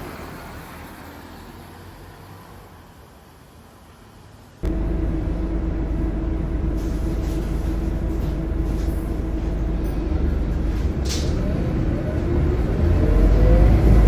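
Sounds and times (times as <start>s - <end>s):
bus diesel engine idling: 4.6s - 13.6s.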